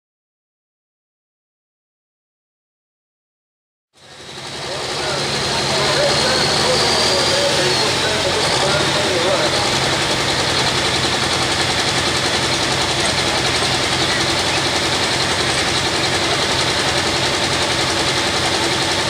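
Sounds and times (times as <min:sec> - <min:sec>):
tractor diesel engine at high revs: 0:04.0 - 0:19.0.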